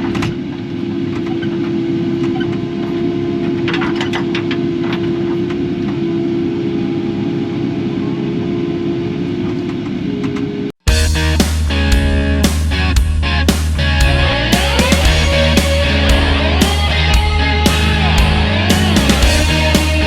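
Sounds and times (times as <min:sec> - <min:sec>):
steady whine: 0:00.0 - 0:20.0
diesel engine running: 0:10.9 - 0:20.0.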